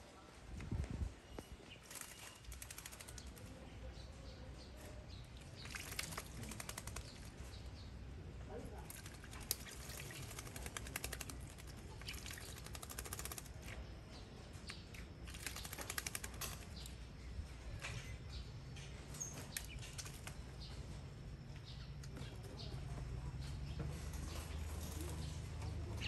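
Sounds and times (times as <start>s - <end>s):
baby bird wings fluttering: 1.7s - 3.5s, 5.6s - 7.5s, 8.7s - 13.8s, 14.6s - 16.9s, 19.4s - 20.4s.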